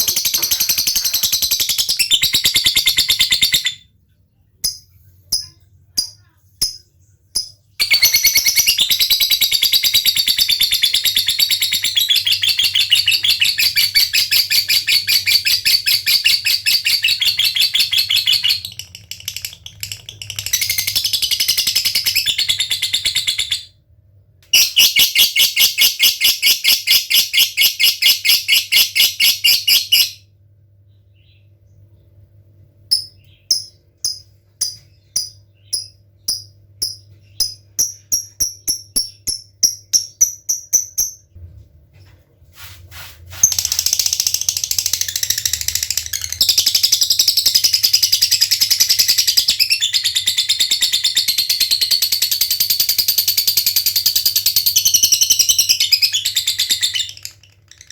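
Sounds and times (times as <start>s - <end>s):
bird sharp ticking notes: 32.9s - 41.3s.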